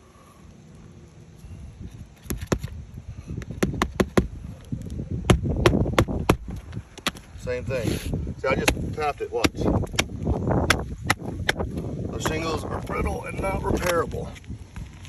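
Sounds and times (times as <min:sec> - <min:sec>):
low wind rumble on microphone: 0:00.0 - 0:15.0
hammer tapping on roof shingles: 0:03.4 - 0:04.4, 0:05.3 - 0:07.2, 0:08.5 - 0:11.7.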